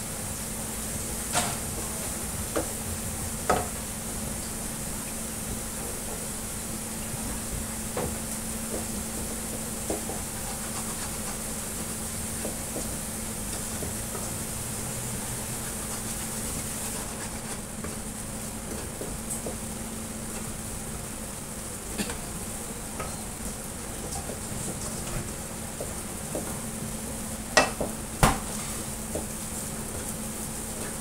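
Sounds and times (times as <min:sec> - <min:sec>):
food sizzling in a pan: 0:00.2 - 0:31.0
spatula scraping a pan: 0:10.2 - 0:11.6, 0:15.6 - 0:17.7.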